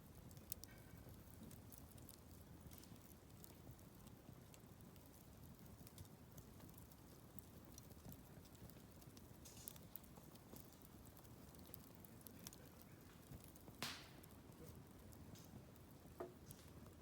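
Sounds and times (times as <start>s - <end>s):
campfire crackling: 0.0s - 17.0s
hissing crack of fire: 0.0s - 17.0s.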